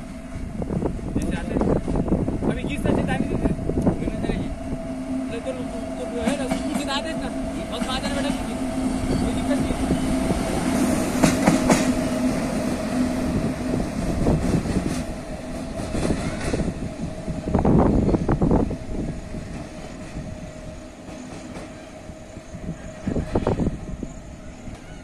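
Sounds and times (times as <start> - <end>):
electric locomotive hum: 0.0 - 25.0
train wheel clatter: 6.2 - 8.5, 10.6 - 12.1, 14.0 - 16.8.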